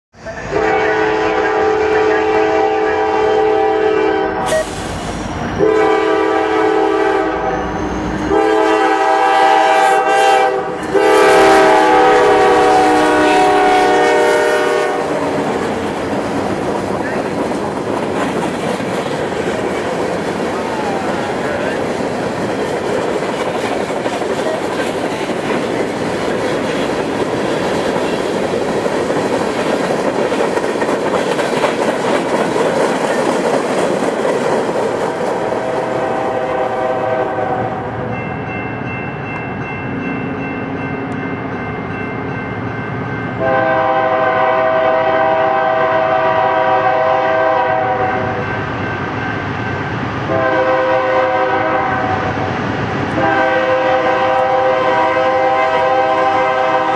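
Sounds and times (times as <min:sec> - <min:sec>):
locomotive air horn: 0:00.2 - 0:15.6, 0:35.5 - 0:38.0, 0:43.4 - 0:48.4, 0:50.3 - 0:52.3, 0:53.2 - 0:56.9
freight train wheels clattering: 0:10.7 - 0:36.4.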